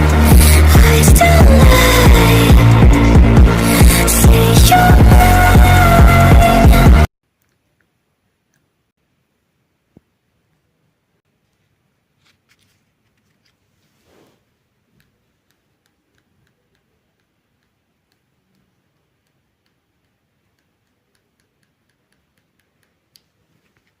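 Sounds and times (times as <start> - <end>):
faint irregular clicks: 14.9 - 24.0.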